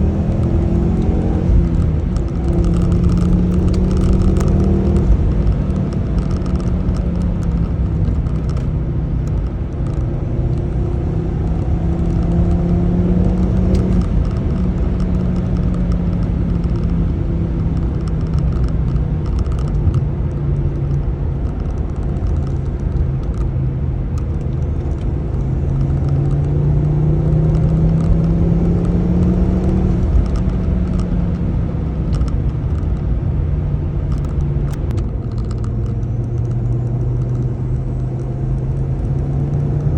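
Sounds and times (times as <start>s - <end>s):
car engine running: 0.0s - 39.9s
road rumble: 0.0s - 39.9s.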